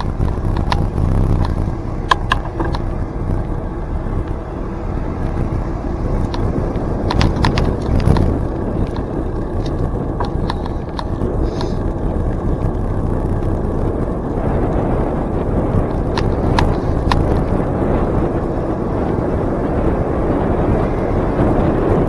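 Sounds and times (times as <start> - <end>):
clicks and rattles: 0.0 - 4.4, 5.2 - 14.8, 15.7 - 18.7
wind and bicycle tyre rumble: 0.0 - 22.0.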